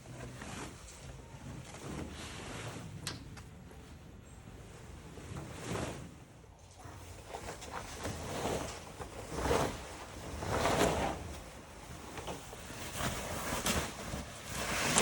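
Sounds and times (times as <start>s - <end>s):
fabric rustling and swishing: 0.0s - 15.0s.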